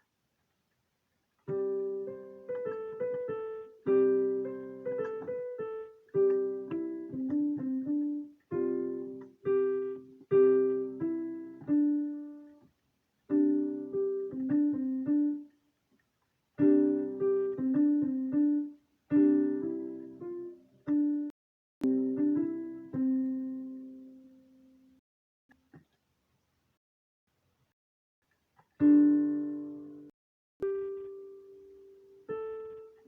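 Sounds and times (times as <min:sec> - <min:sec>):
piano playing a simple melody: 0:01.4 - 0:12.7, 0:13.3 - 0:15.6, 0:16.6 - 0:25.0, 0:28.8 - 0:33.0.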